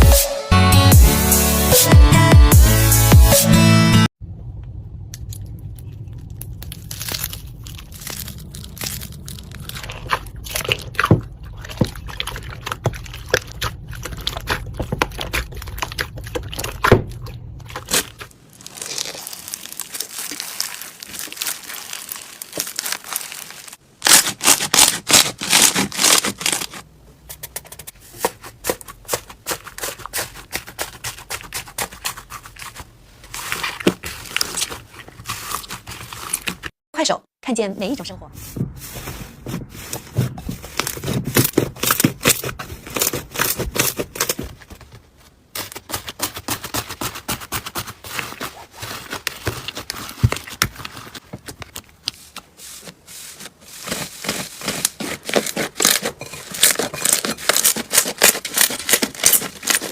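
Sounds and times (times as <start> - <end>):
slime crackling and popping: 5.7 - 11.0, 17.7 - 26.8.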